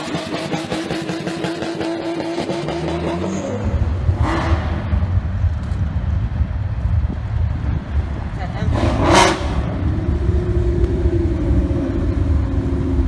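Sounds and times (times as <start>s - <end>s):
car engine revving: 0.0s - 13.0s
deep engine exhaust rumble: 2.8s - 13.0s.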